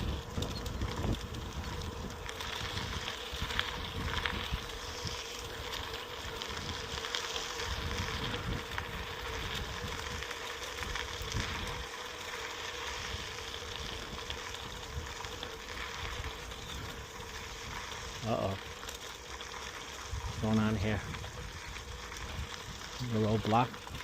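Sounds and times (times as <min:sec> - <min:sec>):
wind on microphone: 0:00.0 - 0:05.2, 0:07.6 - 0:11.8, 0:20.1 - 0:24.0
bicycle tyres on dirt trail: 0:00.0 - 0:24.0.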